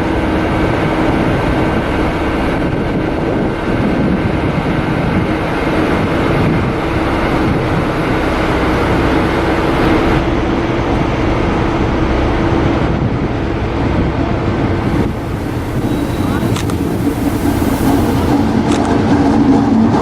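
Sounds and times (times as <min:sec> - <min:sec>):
train rumbling: 0:00.0 - 0:20.0
constant hum: 0:00.4 - 0:20.0
high hiss: 0:14.9 - 0:18.6.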